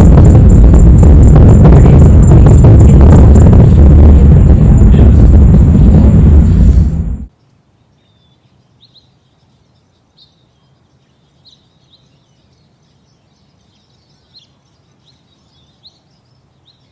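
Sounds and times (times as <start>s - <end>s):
low background hum: 0.0s - 7.3s
faint bird chirps: 7.3s - 16.9s.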